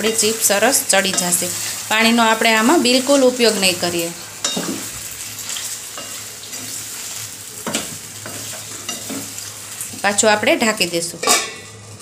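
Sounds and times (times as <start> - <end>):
potato slices sizzling in oil: 0.0 - 12.0
spatula scraping and knocking pan: 5.5 - 9.5.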